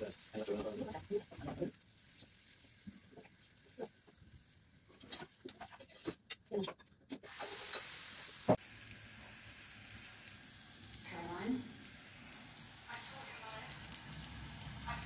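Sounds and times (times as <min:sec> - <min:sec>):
batter sizzling in a pan: 0:00.0 - 0:06.3, 0:07.2 - 0:15.0
spatula scraping a frying pan: 0:04.9 - 0:06.4, 0:07.2 - 0:08.2.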